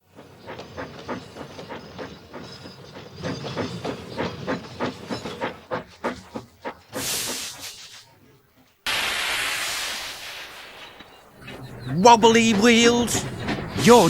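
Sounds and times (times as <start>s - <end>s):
steam locomotive chuffing: 0.0s - 14.0s
steam hissing: 0.1s - 8.2s, 8.9s - 14.0s.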